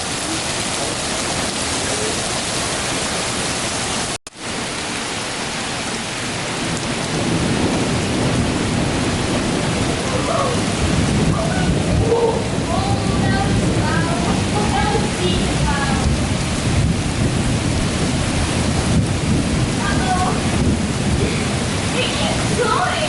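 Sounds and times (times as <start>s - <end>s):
heavy rain pouring: 0.0s - 23.0s
thunder rumble: 6.1s - 23.0s.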